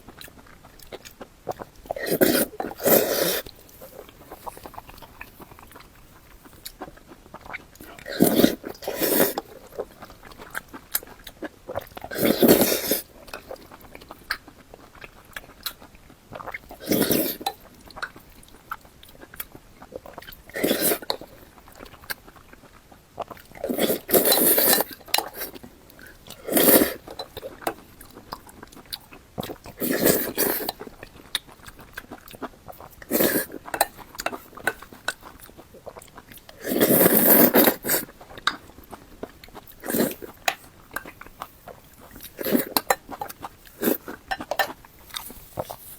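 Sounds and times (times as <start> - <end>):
person chewing with mouth smacks: 0.0 - 45.9
loud bite or slurp: 1.9 - 3.5, 8.0 - 9.5, 26.4 - 27.0, 29.8 - 30.7, 36.6 - 38.1, 39.8 - 40.4.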